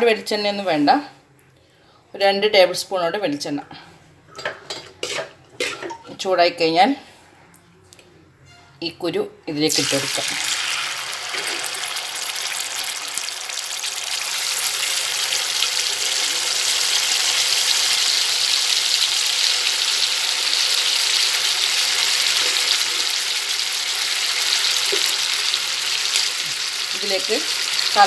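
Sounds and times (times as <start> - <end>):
seeds sizzling in hot oil: 9.7 - 28.0.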